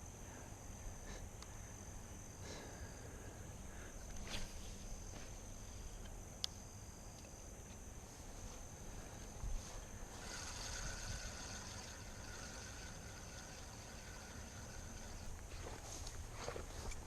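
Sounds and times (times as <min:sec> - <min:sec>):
low wind rumble: 0:00.0 - 0:17.0
high-pitched insect drone: 0:08.5 - 0:17.0.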